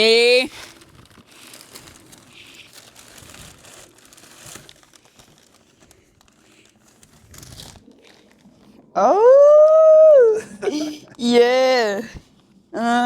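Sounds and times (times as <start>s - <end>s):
packaging crinkling and rustling: 0.0s - 8.9s.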